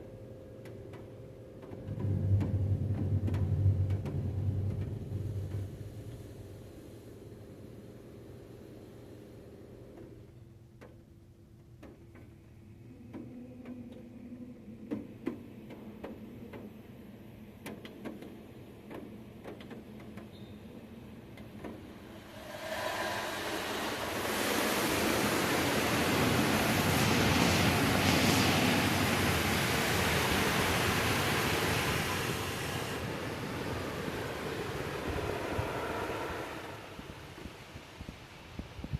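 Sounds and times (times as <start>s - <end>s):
water dripping and tapping on vehicle: 0.6s - 5.6s
wash equipment rushing: 22.0s - 38.1s.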